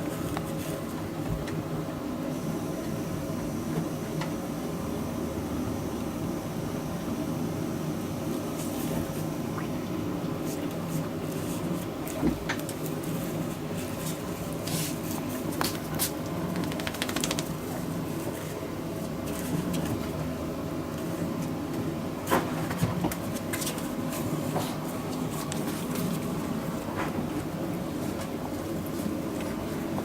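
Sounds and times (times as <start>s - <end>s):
low mechanical hum: 0.0s - 30.0s
sharp clicks and taps: 16.6s - 17.5s.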